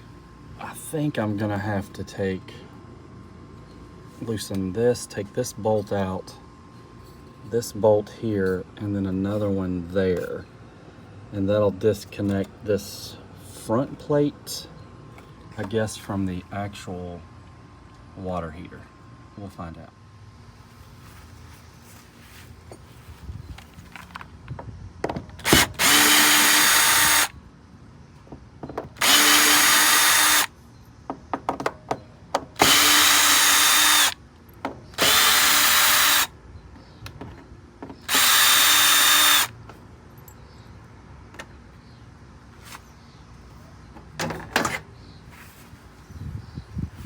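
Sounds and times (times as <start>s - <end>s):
power drill motor whining: 25.4s - 27.3s, 29.0s - 30.5s, 32.6s - 34.2s, 35.0s - 36.3s, 38.0s - 39.5s.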